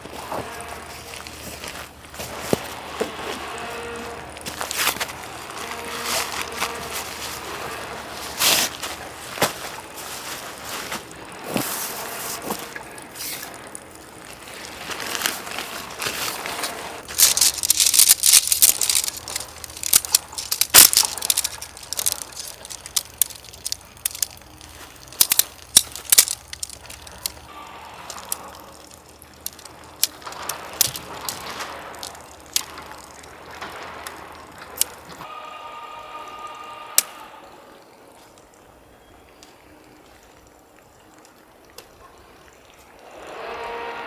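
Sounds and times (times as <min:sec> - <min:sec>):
rustling and crinkling: 0:00.0 - 0:35.3
sharp clicks and knocks: 0:17.1 - 0:27.5.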